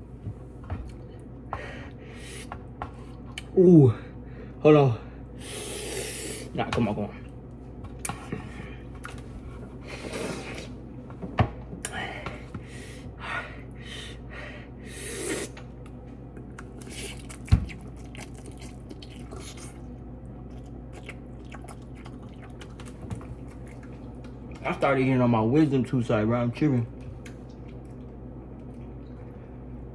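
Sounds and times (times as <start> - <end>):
chewing and slurping noodles: 16.6 - 24.6.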